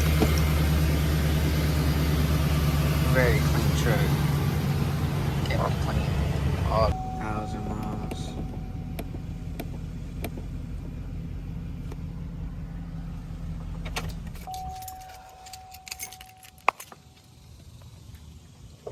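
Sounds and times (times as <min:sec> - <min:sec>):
truck engine idling: 0:00.0 - 0:18.9
steady beep: 0:06.9 - 0:09.1.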